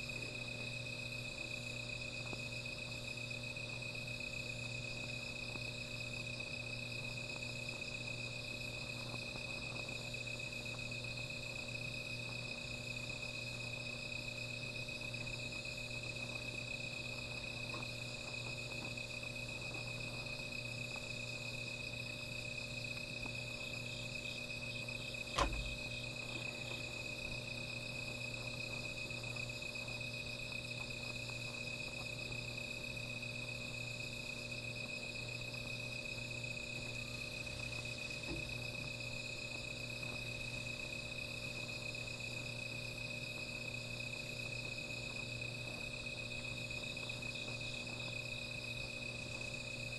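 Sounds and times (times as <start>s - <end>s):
insect chirps: 0.0s - 49.9s
night insects trilling: 0.0s - 49.9s
sharp click: 25.3s - 25.8s.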